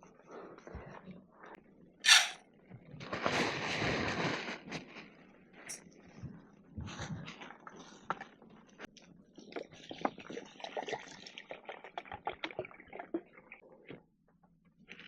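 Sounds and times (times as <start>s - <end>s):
liquid splashing and trickling: 9.5s - 13.6s.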